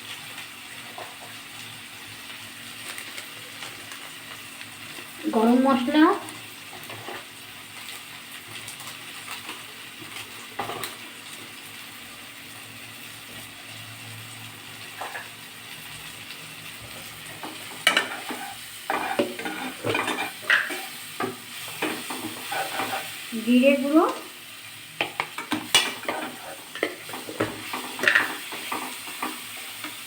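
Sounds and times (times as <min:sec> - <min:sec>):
masala sizzling in pan: 0:00.0 - 0:30.0
spoon scraping pan: 0:17.2 - 0:23.3, 0:25.0 - 0:30.0.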